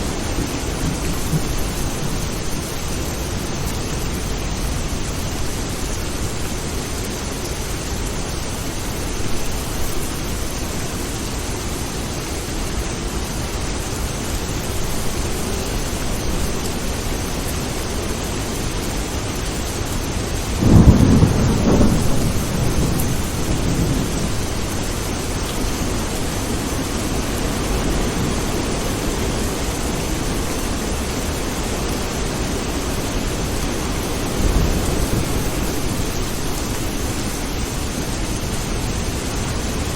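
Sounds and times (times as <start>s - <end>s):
thunder clap and rumble: 0.0s - 4.3s, 20.6s - 29.8s, 33.3s - 37.1s
steady rain falling: 0.0s - 39.9s.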